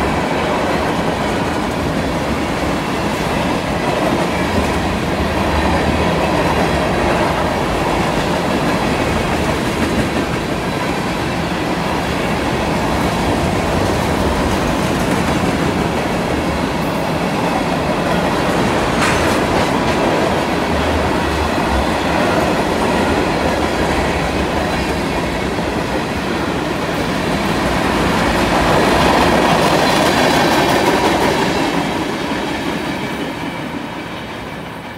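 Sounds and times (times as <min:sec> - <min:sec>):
freight train wheels rumbling on rail: 0:00.0 - 0:34.9
rhythmic clickety-clack: 0:08.0 - 0:11.0, 0:18.0 - 0:20.6.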